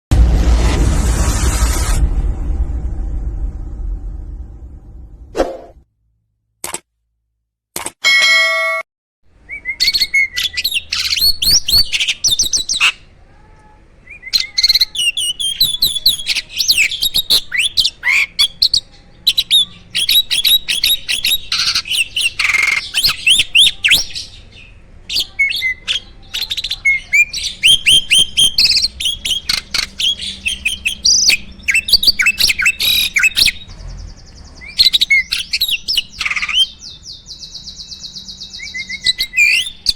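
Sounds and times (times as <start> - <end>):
starling singing: 9.5 - 13.1, 14.0 - 39.9.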